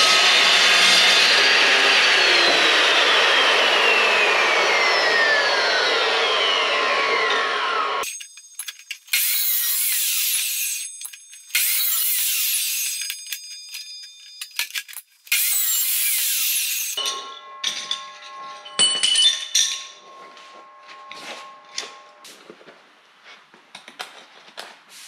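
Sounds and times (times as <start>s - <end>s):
power tool cutting steel: 0.0s - 18.9s
steel pieces clinking: 8.0s - 20.2s.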